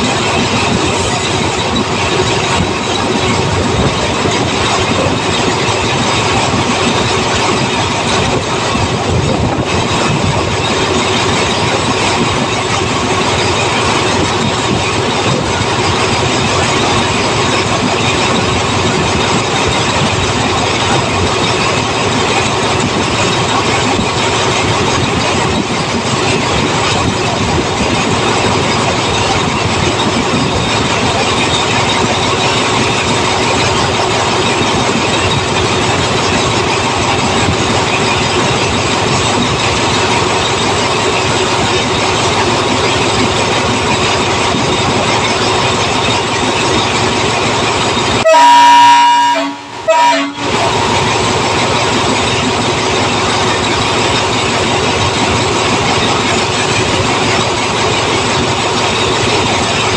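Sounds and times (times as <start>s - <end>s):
train running on rails: 0.0s - 59.9s.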